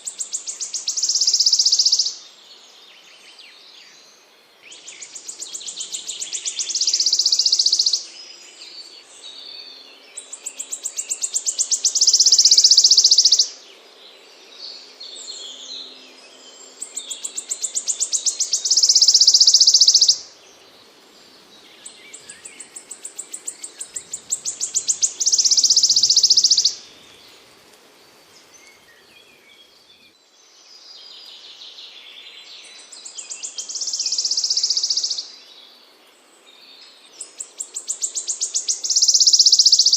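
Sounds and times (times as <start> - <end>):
songbird buzzy trill song: 0.0 - 39.9
other birds chirping: 16.7 - 27.6.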